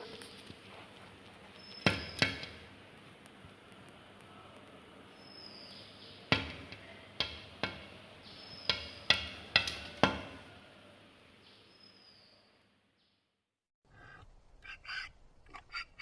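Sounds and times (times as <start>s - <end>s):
sharp ringing knocks: 6.3s - 8.0s, 8.6s - 10.4s.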